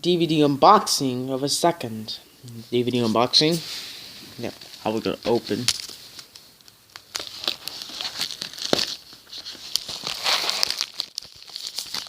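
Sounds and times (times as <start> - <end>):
packaging crinkling and tearing: 4.5 - 12.0.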